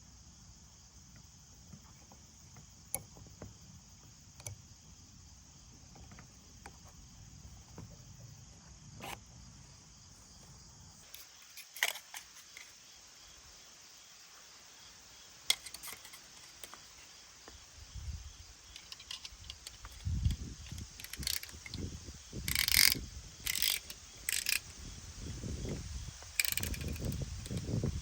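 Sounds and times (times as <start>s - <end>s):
metal clicks and clanks: 11.0s - 12.7s, 15.5s - 17.0s, 18.7s - 24.7s, 25.6s - 27.8s.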